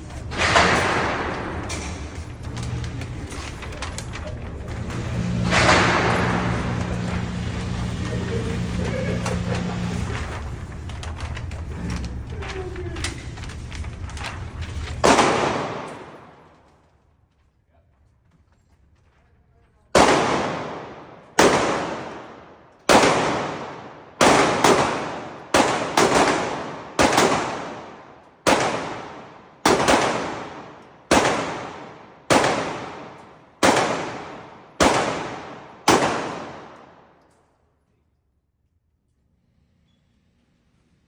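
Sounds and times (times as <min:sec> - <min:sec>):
echoing gunshots: 0:00.0 - 0:10.8, 0:14.9 - 0:16.7, 0:19.9 - 0:37.2.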